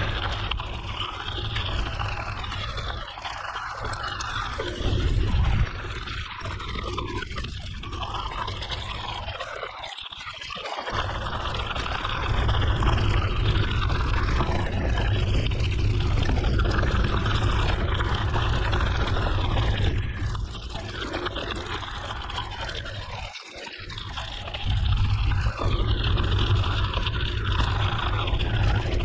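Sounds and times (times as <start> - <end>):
bicycle tyre noise: 0.0 - 9.3, 10.9 - 23.1.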